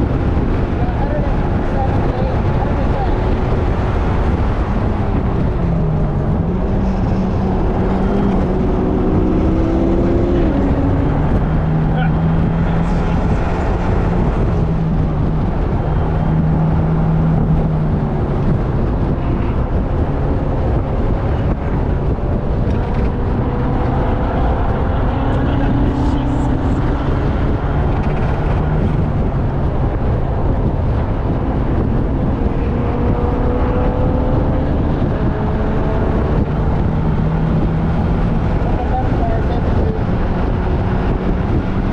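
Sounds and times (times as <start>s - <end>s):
car engine at speed: 0.0s - 41.9s
wind and road noise: 0.0s - 41.9s.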